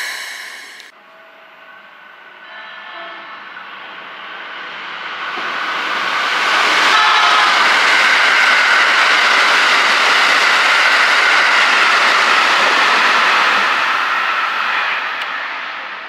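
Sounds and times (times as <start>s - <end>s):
train rushing past: 0.0s - 16.0s.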